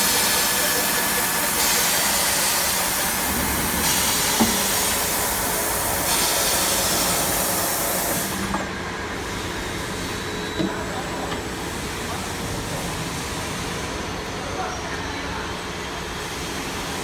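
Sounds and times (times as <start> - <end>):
loud high hiss: 0.0 - 8.5
industrial drilling machine running: 0.0 - 17.0.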